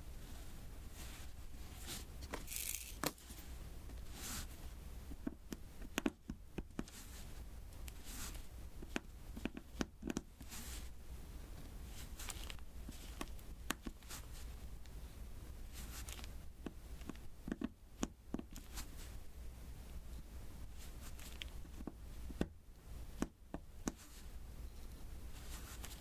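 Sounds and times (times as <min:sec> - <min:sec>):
small taps and clicks: 0:16.2 - 0:18.7.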